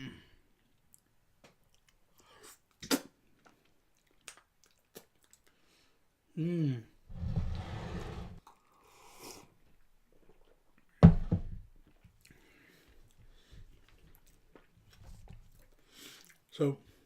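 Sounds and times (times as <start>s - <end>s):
person chewing food: 0.5s - 5.7s, 11.8s - 16.5s.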